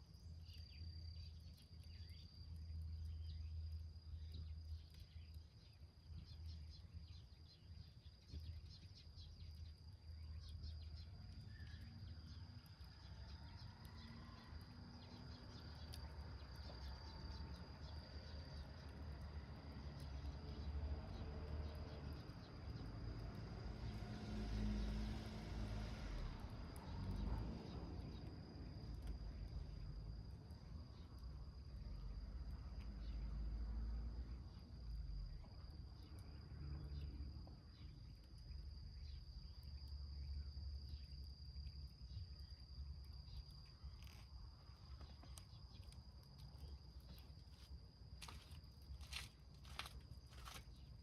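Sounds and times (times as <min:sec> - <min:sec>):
low rumble of wind: 0:00.0 - 0:51.0
high insect trill: 0:37.7 - 0:51.0
wood fire crackling: 0:45.3 - 0:51.0.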